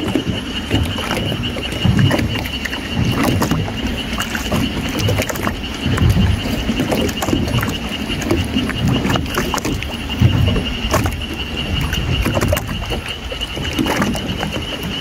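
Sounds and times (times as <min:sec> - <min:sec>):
small sharp water splashes: 0:00.0 - 0:15.0
steady high-pitched whine: 0:00.0 - 0:15.0
water lapping against boat hull: 0:00.0 - 0:15.0.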